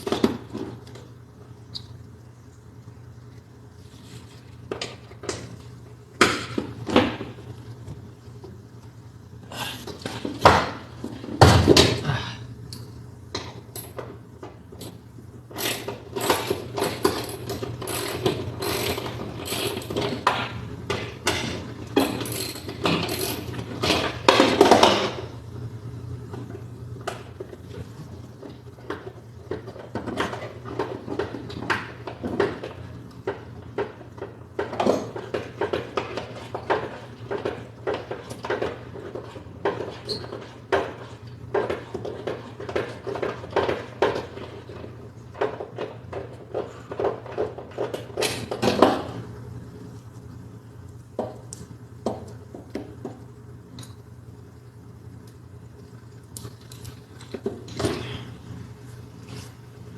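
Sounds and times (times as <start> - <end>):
ratchet clicking and clanking: 15.6 - 20.2.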